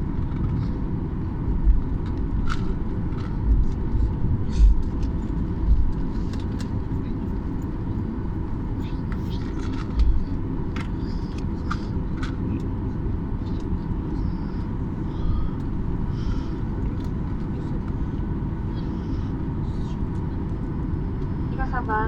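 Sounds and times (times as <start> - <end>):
airliner cabin rumble: 0.0 - 22.0
faint steady whine: 0.0 - 22.0.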